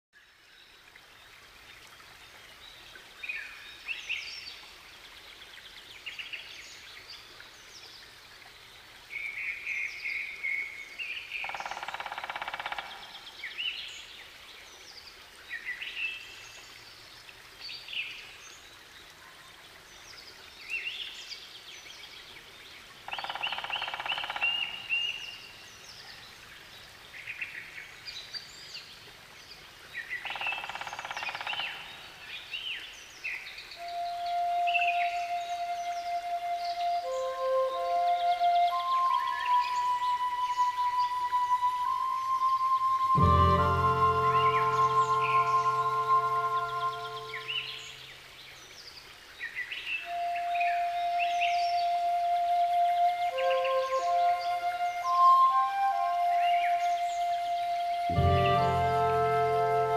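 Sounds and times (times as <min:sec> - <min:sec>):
faint steady hiss: 0:00.2 - 0:59.9
birds chirping: 0:43.1 - 0:48.3.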